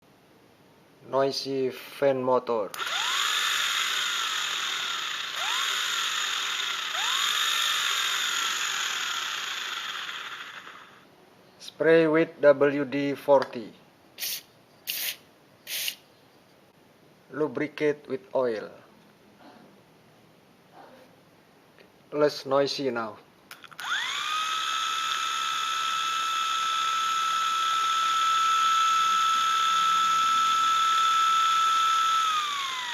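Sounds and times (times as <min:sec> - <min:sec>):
cooling fan motor whine: 0:02.8 - 0:11.0, 0:23.8 - 0:32.9
steady harsh hiss: 0:14.2 - 0:16.0.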